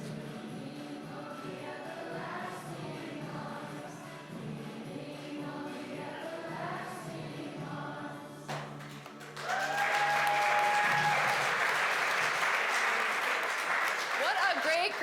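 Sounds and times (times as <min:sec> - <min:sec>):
group singing with music track: 0:00.0 - 0:09.0
audience applause and cheering: 0:09.0 - 0:15.0
long held whoop: 0:09.4 - 0:11.5.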